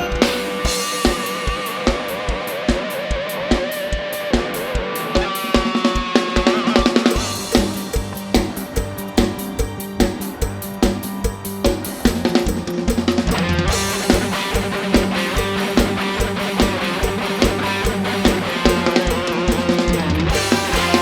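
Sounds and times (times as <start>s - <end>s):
drum kit beat: 0.0s - 21.0s
live band music: 0.0s - 21.0s
bass line: 7.2s - 21.0s.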